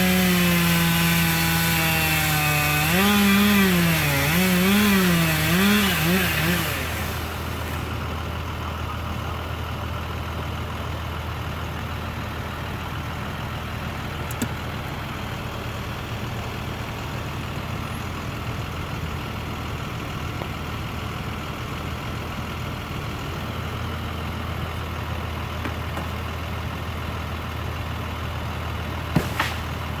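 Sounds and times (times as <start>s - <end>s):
chainsaw whine: 0.0s - 8.1s, 29.1s - 30.0s
engine idling low: 7.0s - 30.0s
sharp clicks: 14.2s - 14.6s.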